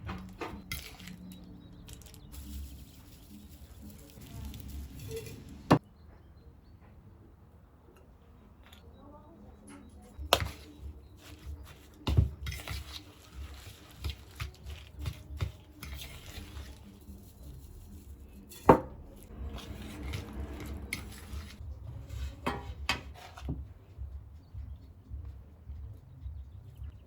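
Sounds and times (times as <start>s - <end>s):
dishes and utensils clinking: 0.0s - 5.8s, 18.3s - 23.6s.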